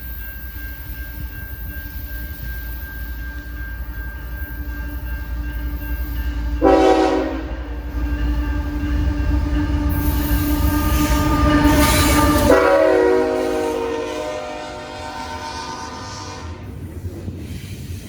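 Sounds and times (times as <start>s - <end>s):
multi-note air horn: 6.6s - 7.5s, 12.4s - 16.6s.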